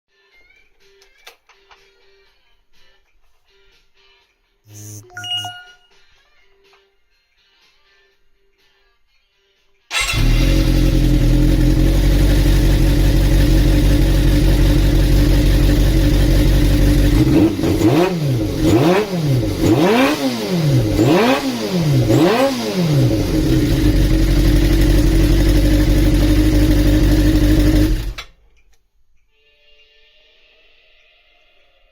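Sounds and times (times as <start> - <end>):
motorcycle engine revving: 9.9 - 28.3.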